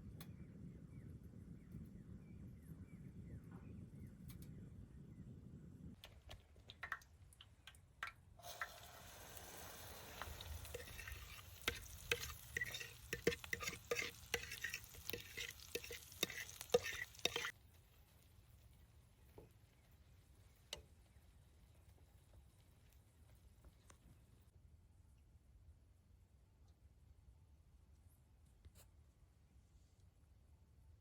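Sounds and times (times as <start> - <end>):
spoon scraping against pan: 8.4 - 17.5
food sizzling in a pan: 8.4 - 18.0.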